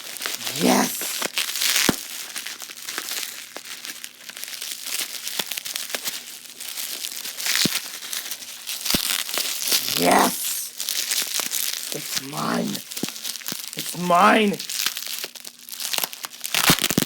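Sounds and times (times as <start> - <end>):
packaging crinkling and rustling: 1.1 - 9.8, 10.7 - 11.9, 12.8 - 13.8, 14.6 - 17.0.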